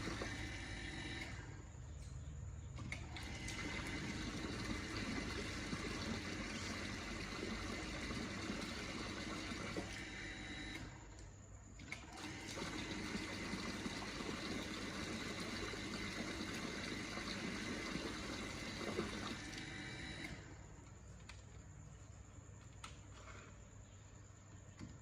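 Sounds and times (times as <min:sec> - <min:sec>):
water pump running: 0:00.0 - 0:01.7, 0:02.8 - 0:11.0, 0:11.8 - 0:20.7.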